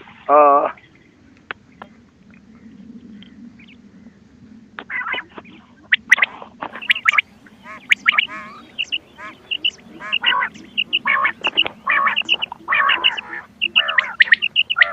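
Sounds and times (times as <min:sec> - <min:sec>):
low hum: 0:00.0 - 0:14.9
quail calls: 0:04.8 - 0:14.9.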